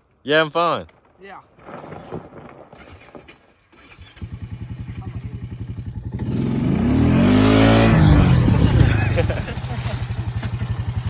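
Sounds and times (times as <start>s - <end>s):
off-road vehicle engine putter: 2.8s - 11.0s.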